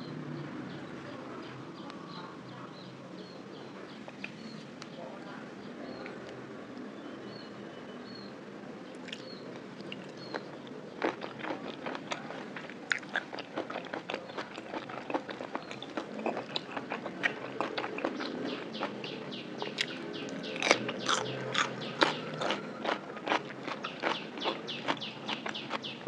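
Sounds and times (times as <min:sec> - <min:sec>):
wet chewing: 0:09.0 - 0:26.0.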